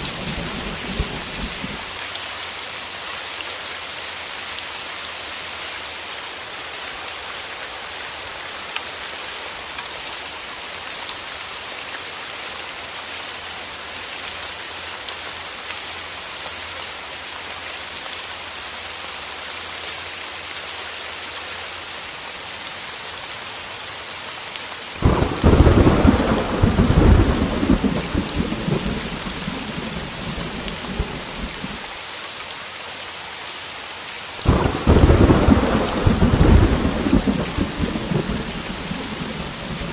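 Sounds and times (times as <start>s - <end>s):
thunder rumbling: 0.0s - 1.9s, 25.0s - 31.9s, 34.4s - 39.9s
heavy rain hissing: 0.0s - 39.9s.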